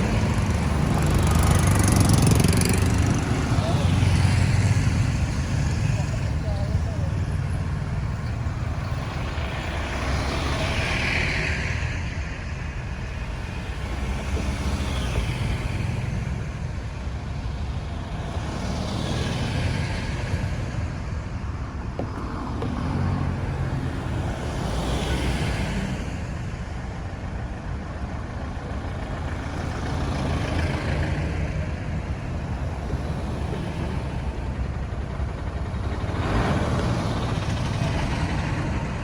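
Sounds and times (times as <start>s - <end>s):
low engine rumble: 0.0s - 10.2s, 12.8s - 25.1s
vehicles passing by: 0.0s - 39.0s.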